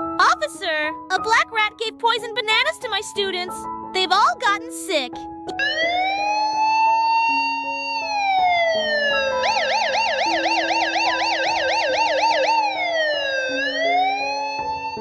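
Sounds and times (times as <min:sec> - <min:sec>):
background music: 0:00.0 - 0:15.0
police car siren: 0:05.6 - 0:15.0.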